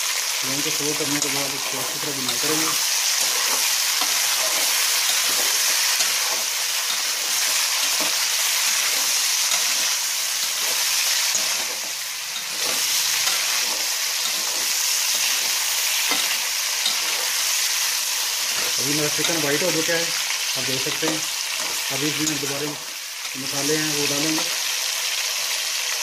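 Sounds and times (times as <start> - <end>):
chicken sizzling in hot oil: 0.0 - 26.0
metal spatula scraping a pan: 0.6 - 19.9.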